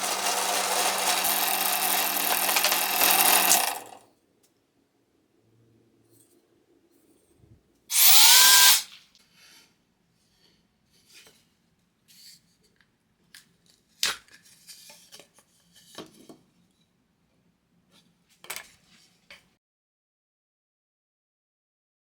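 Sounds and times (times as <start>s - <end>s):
power drill motor whine: 0.0s - 4.0s, 7.9s - 8.8s.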